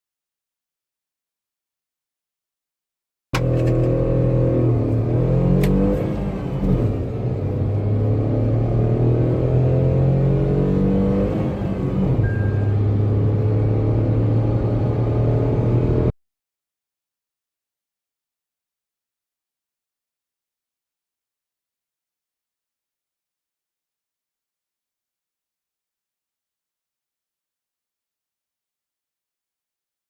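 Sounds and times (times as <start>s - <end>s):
car engine accelerating hard: 3.4s - 16.1s.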